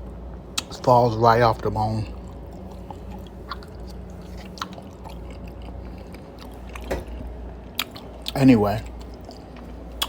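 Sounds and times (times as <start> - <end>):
steady low hum: 0.0 - 10.0
person chewing food: 2.1 - 10.0.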